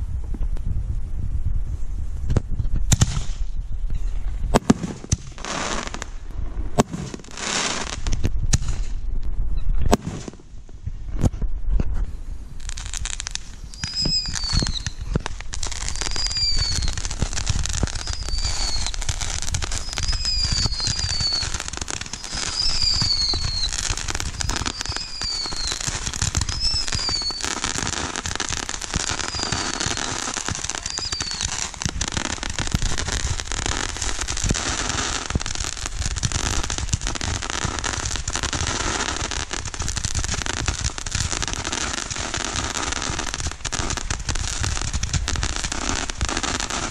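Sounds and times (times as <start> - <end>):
fireworks banging and crackling: 2.2 - 3.6, 4.3 - 9.1, 9.8 - 46.9
falling firework whistles: 12.6 - 46.9.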